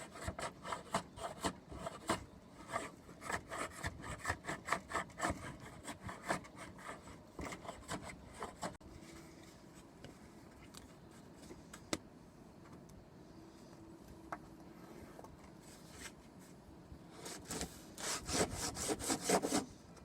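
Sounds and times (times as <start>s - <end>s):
rasping strokes on wood: 18.0s - 19.7s.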